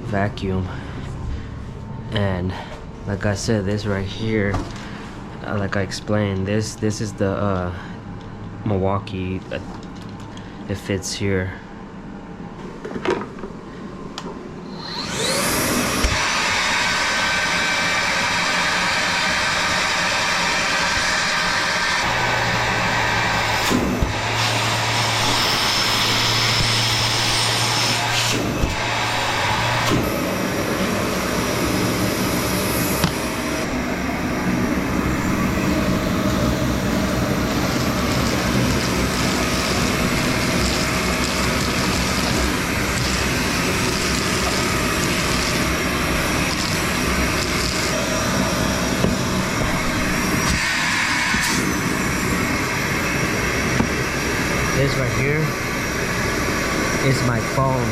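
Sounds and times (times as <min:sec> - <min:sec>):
wet dry vacuum running: 0:14.5 - 0:57.9
low hum: 0:21.5 - 0:57.6.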